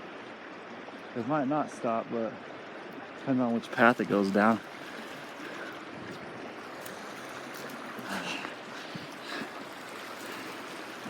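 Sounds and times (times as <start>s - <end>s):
creek flowing: 0.0s - 11.0s
water gurgles: 0.0s - 11.0s.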